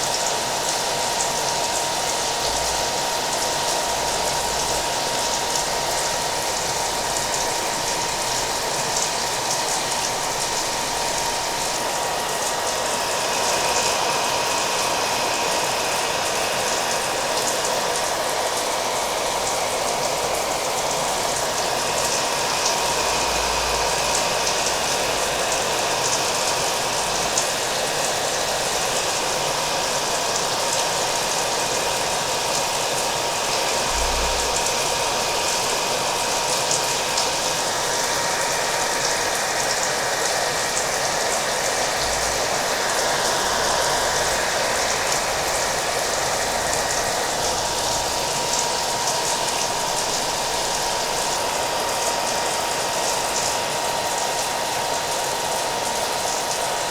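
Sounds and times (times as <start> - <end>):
hair dryer whining: 0.0 - 56.9.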